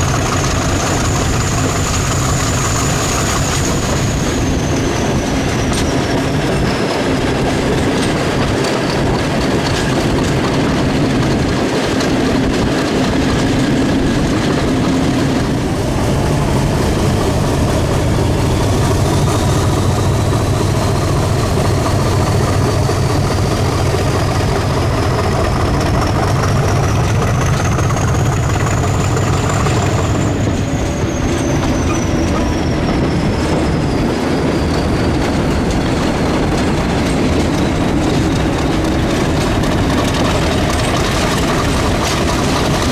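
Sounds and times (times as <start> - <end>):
locomotive engine drone: 0.0 - 42.9
train wheels clacking on rails: 0.0 - 42.9.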